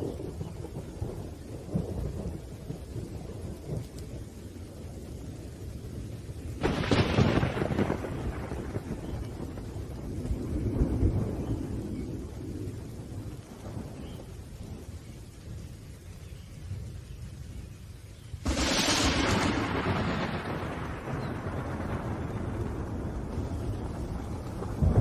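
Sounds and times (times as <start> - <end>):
steady rain: 0.0 - 25.0
thunder rumbling: 0.0 - 25.0
loud thunder clap: 6.6 - 11.8, 18.4 - 25.0.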